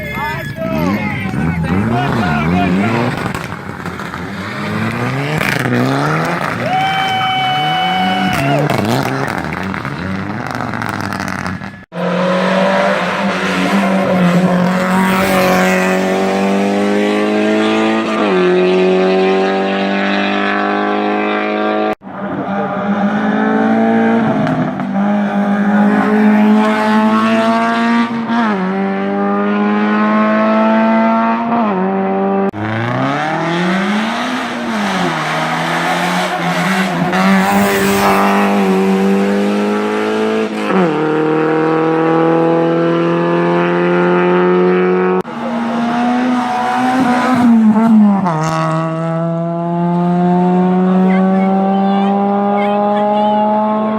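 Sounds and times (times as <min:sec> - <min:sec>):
race car engines accelerating: 0:00.0 - 0:53.9.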